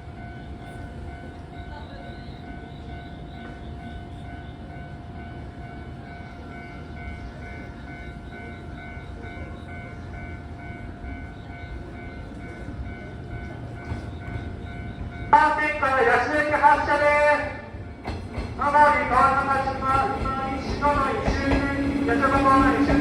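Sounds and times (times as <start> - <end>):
electric train equipment rumble: 0.0 - 23.0.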